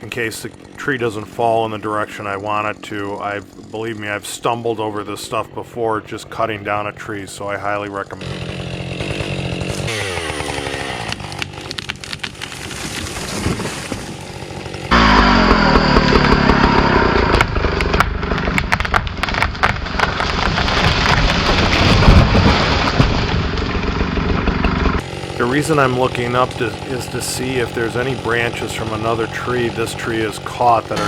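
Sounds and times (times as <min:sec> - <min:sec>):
chainsaw running: 0:00.0 - 0:31.0
branches cracking: 0:08.2 - 0:31.0.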